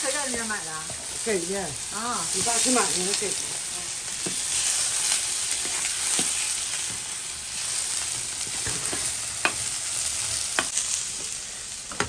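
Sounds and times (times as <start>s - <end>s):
broth sizzling in a wok: 0.0s - 12.0s.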